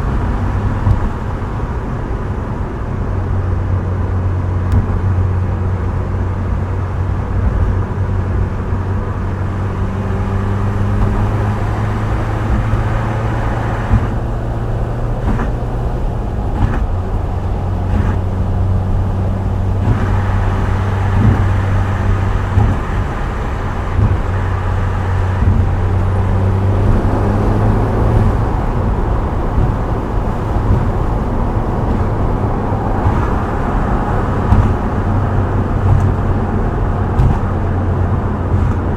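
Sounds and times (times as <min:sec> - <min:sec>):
car engine cruising: 0:00.0 - 0:38.9
tyre and road noise: 0:00.0 - 0:38.9.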